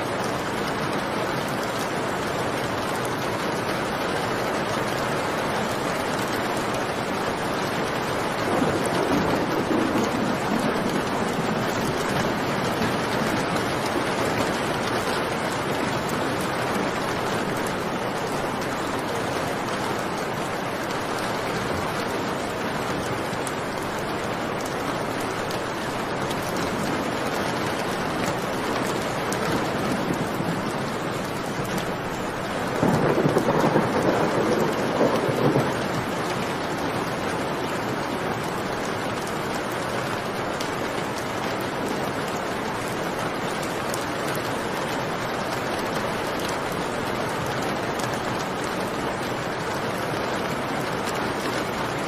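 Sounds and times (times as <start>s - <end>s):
heavy rain: 0.0s - 52.0s
low rumble of thunder: 8.2s - 15.5s, 29.2s - 37.5s.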